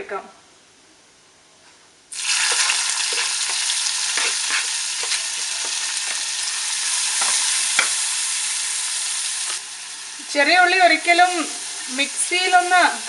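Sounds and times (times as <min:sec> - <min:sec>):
shallots sizzling in hot oil: 0:02.1 - 0:13.0
spoon stirring in a pan: 0:02.2 - 0:08.0.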